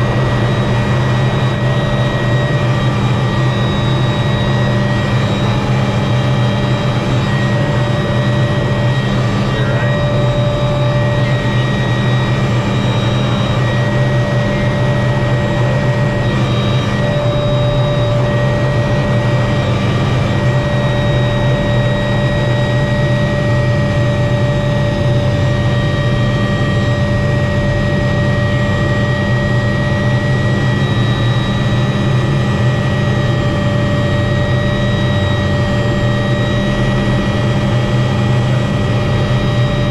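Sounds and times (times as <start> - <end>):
helicopter rotor and engine drone: 0.0 - 39.9
high-pitched whines: 0.0 - 39.9.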